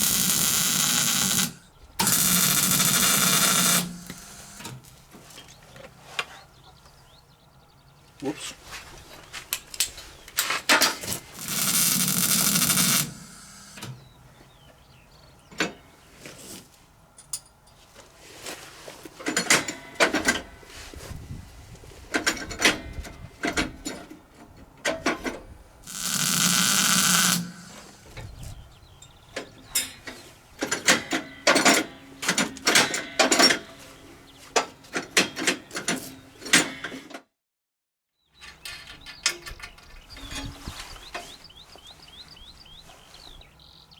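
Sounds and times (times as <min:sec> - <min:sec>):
hissing tool noise: 0:00.0 - 0:04.9, 0:11.1 - 0:14.0, 0:25.9 - 0:28.3.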